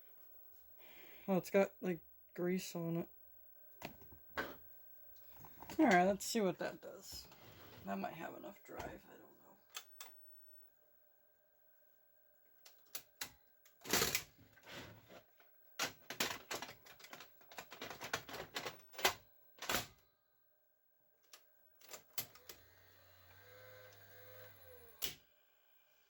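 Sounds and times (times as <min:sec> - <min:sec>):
motor humming: 0:22.3 - 0:26.0.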